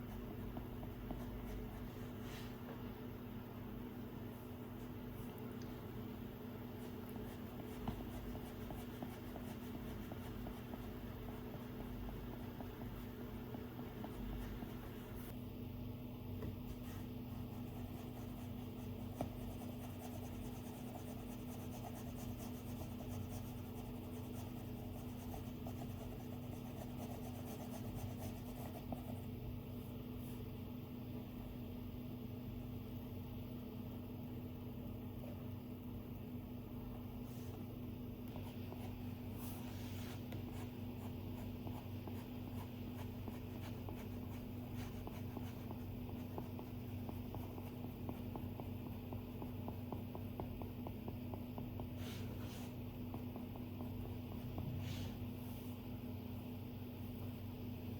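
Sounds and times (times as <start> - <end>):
stylus drawing on tablet screen: 0.0 - 2.8, 5.8 - 15.4, 16.4 - 29.3, 38.3 - 55.4
steady low hum: 0.0 - 57.9.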